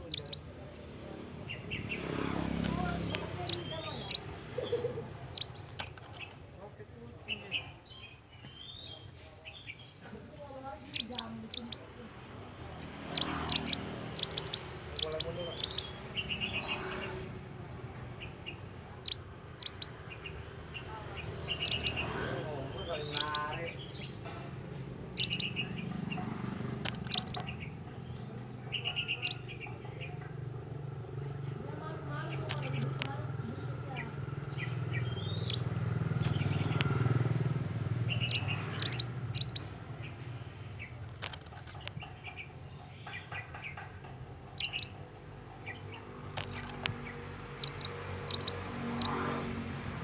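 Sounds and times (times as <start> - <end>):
bird chirping calls: 0.0 - 50.0
sharp clicks: 5.4 - 6.4, 26.6 - 27.6, 32.4 - 33.2, 35.3 - 37.0, 38.2 - 39.7, 41.0 - 42.2, 46.2 - 49.1.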